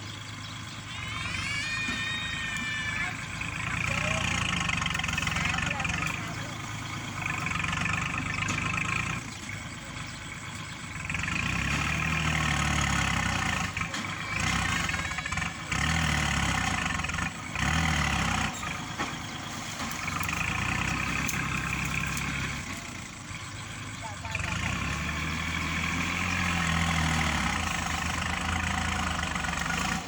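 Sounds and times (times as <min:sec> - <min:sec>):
tractor diesel engine revving: 0:00.0 - 0:30.0.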